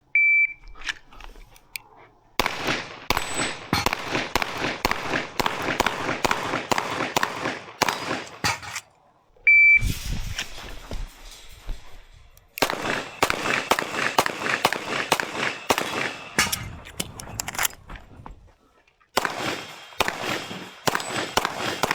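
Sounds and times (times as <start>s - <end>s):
pistol shots with echo: 2.4s - 8.8s, 12.6s - 16.8s, 19.2s - 21.9s.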